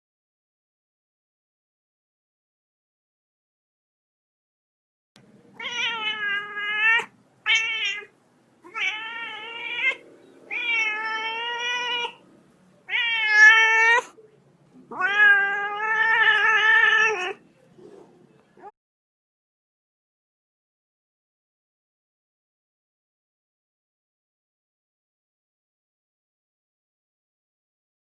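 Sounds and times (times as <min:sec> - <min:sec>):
cat meowing: 0:05.5 - 0:12.2, 0:12.8 - 0:14.2, 0:14.9 - 0:17.4.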